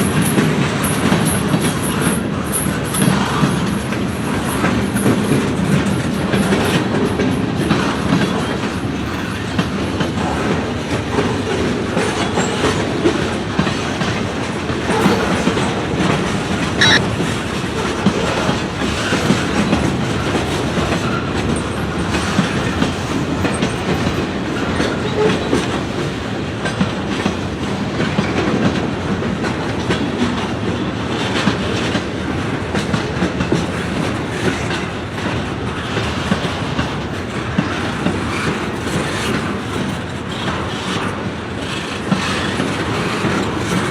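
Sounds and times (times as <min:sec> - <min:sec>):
train wheels clicking over rail joints: 0:00.0 - 0:43.9.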